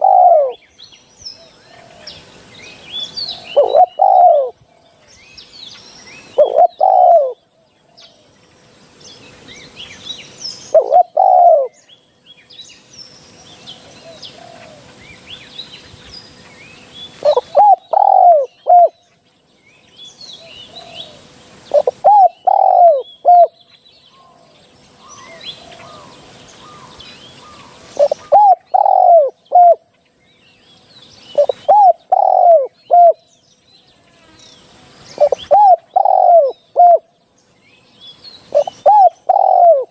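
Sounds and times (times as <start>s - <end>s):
dove cooing: 0.0s - 0.6s, 3.3s - 4.6s, 6.2s - 7.4s, 10.7s - 11.8s, 13.8s - 14.9s, 17.2s - 19.0s, 20.6s - 23.6s, 25.3s - 29.8s, 31.3s - 33.2s, 35.1s - 37.1s, 38.5s - 39.9s
small birds chirping: 0.0s - 39.9s.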